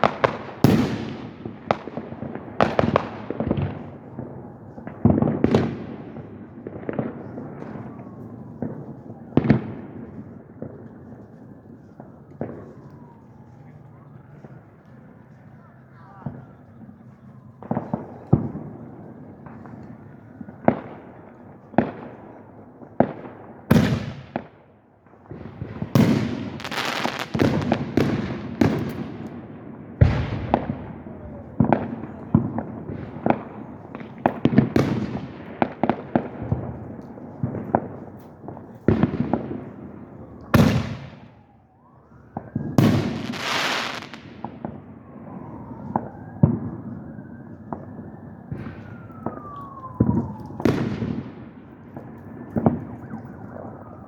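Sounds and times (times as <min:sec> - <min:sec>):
fireworks bangs: 0:00.0 - 0:54.0
fireworks crackling hiss: 0:26.5 - 0:27.6, 0:43.0 - 0:44.2.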